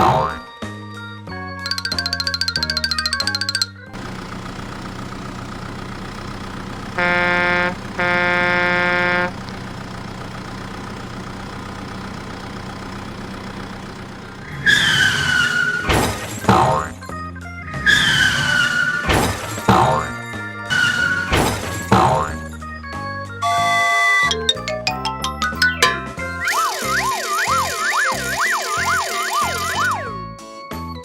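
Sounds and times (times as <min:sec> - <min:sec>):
cartoon engine running: 0:01.7 - 0:04.4, 0:07.0 - 0:09.3, 0:23.6 - 0:30.2
horn honks: 0:06.8 - 0:09.5
falling whistling tones: 0:25.8 - 0:30.2.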